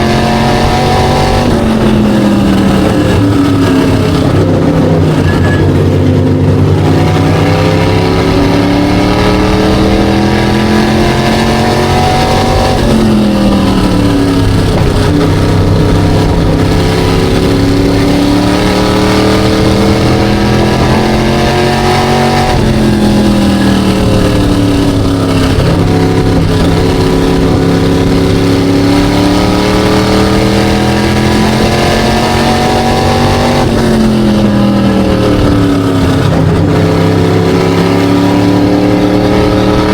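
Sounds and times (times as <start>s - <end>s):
race car engine: 0.0s - 39.9s.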